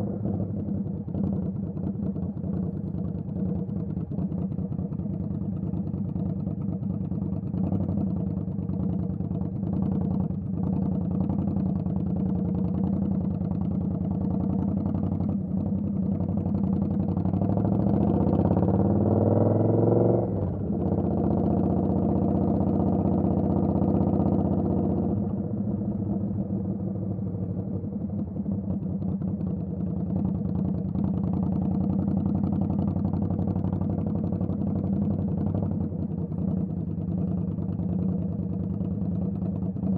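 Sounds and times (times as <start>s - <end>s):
motorcycle engine running and revving: 0.0s - 39.9s.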